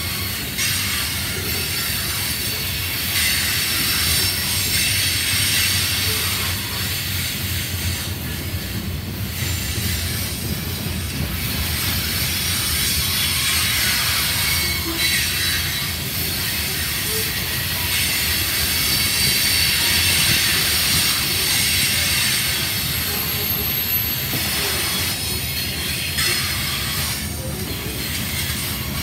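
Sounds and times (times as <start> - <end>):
freight train wheels rumbling: 0.0 - 29.0
faint thin squeal: 13.4 - 28.8.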